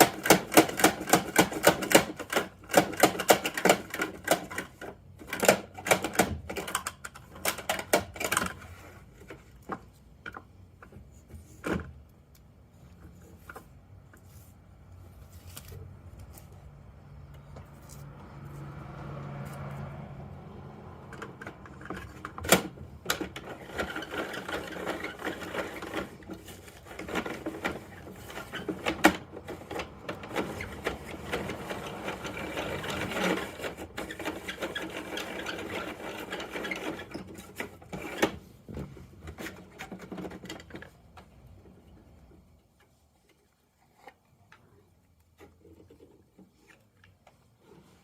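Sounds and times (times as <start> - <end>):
toy truck plastic rattling: 0.0 - 10.4, 21.1 - 38.5.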